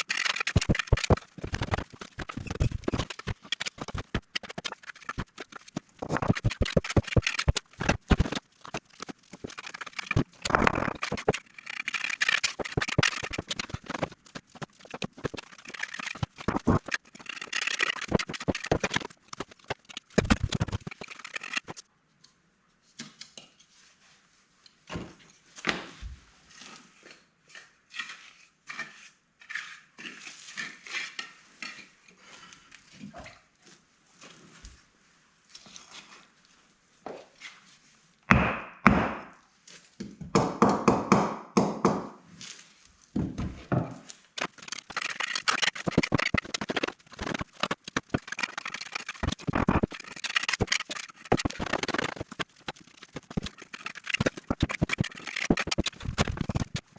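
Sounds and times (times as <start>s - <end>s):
trowel scraping mortar: 0.0s - 21.8s, 26.5s - 32.5s, 44.4s - 56.9s.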